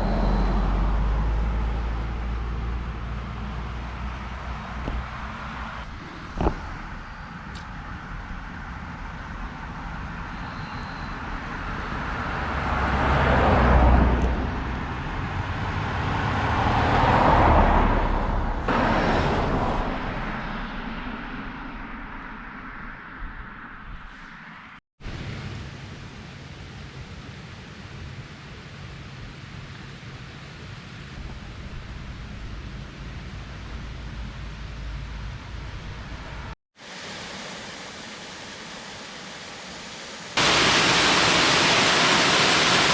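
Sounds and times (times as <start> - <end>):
vehicles passing: 0.0 - 24.8.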